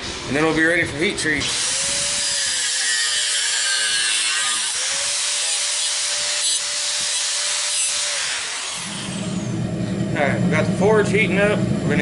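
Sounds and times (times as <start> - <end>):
power tool grinding steel: 1.2 - 9.7.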